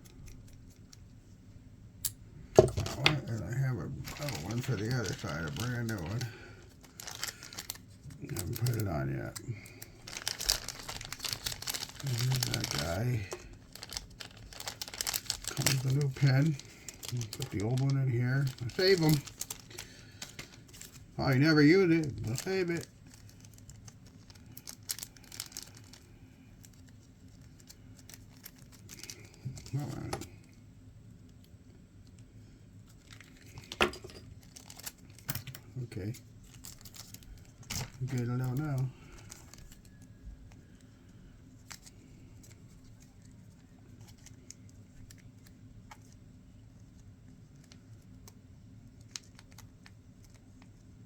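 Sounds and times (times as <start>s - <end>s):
low steady hum: 0.0s - 51.0s
small parts clicking and rustling: 4.0s - 30.3s, 32.9s - 41.0s.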